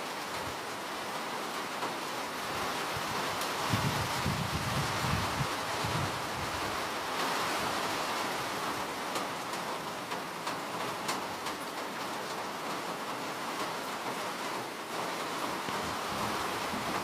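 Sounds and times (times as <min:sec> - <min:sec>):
steady rain hissing: 0:00.0 - 0:17.0
raindrops ticking: 0:08.8 - 0:17.0.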